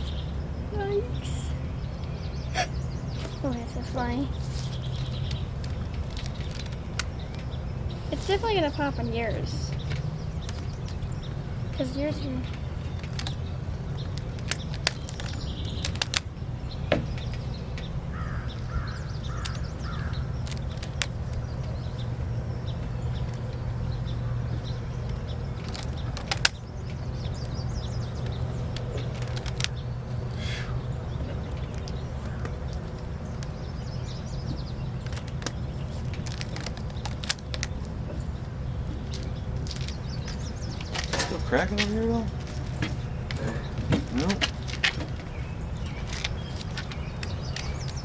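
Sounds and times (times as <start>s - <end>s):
bird calling: 0.0s - 48.0s
rubber bands snapping: 4.5s - 7.6s, 11.7s - 22.1s, 25.0s - 48.0s.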